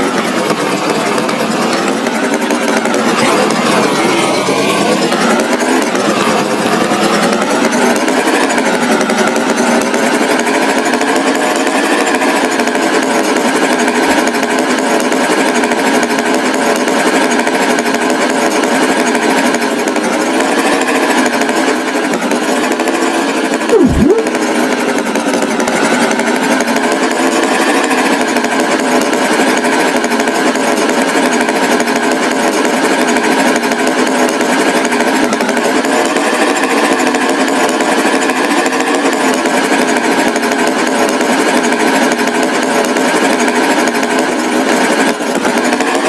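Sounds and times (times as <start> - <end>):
cartoon tractor engine rattling: 0.0 - 22.2, 28.0 - 46.0
swooping tone: 23.7 - 24.4.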